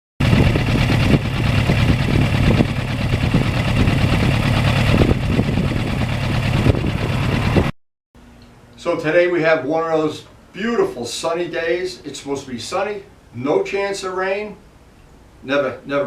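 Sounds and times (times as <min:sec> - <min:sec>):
motorcycle engine running: 0:00.2 - 0:07.7.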